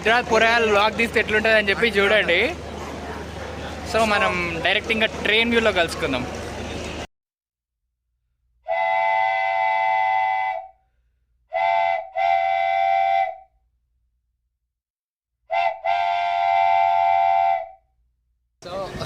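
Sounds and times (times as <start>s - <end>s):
train horn blasts: 8.7s - 10.7s, 11.5s - 13.4s, 15.5s - 17.8s.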